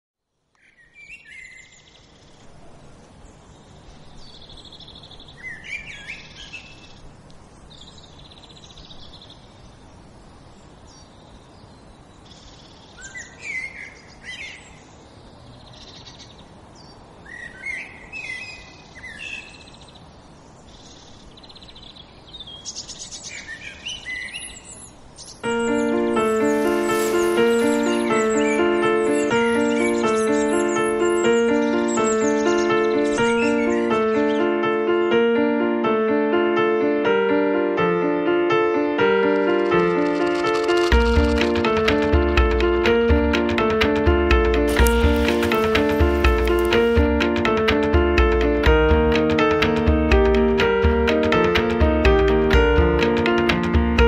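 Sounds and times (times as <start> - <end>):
faint outdoor background noise: 0.2 - 41.8
songbirds chirping and singing: 3.3 - 35.2.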